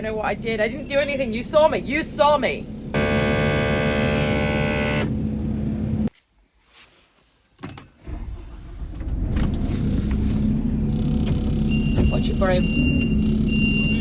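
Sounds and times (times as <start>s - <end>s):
high warning beep: 2.5s - 6.1s, 7.8s - 14.0s
machine engine running: 2.6s - 6.1s.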